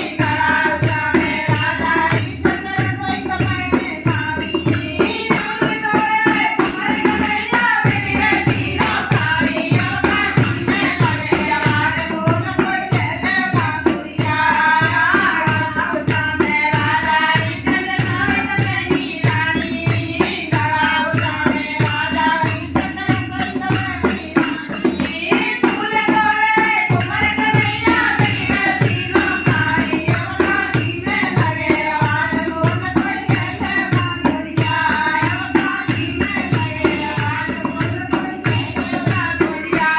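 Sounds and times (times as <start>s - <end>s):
hand drum beat: 0.0s - 39.9s
jingling percussion: 0.0s - 39.9s.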